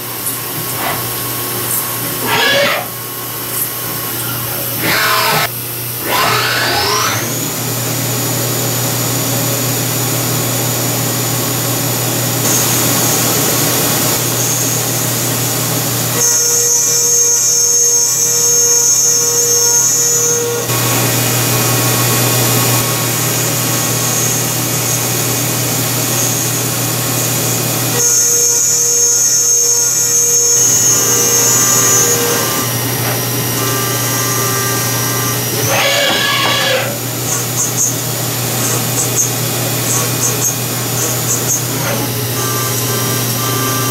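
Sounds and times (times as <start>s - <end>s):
milling machine spindle whine: 0.0s - 43.9s
spindle winding down: 29.2s - 37.8s.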